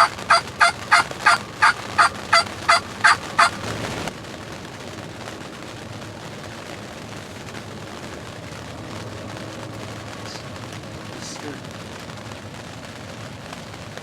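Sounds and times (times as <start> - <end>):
turkey yelping: 0.0 - 3.6.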